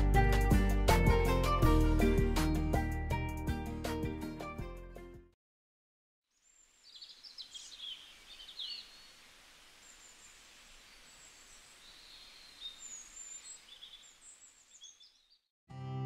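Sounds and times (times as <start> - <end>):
background hiss: 6.3 - 14.9
small birds chirping and whistling: 6.8 - 9.2, 9.8 - 15.4.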